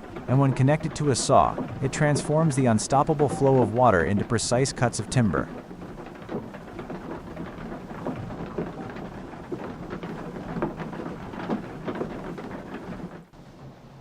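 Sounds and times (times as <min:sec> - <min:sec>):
water splashing and pouring: 0:00.0 - 0:10.7
knocks and clatters: 0:00.0 - 0:14.0.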